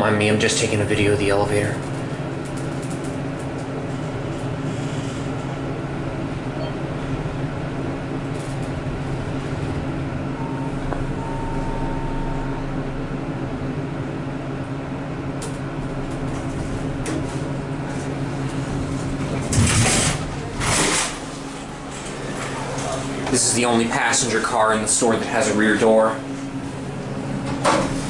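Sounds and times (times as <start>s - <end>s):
elevator hum: 0.0s - 28.0s
thin tone: 10.3s - 13.1s.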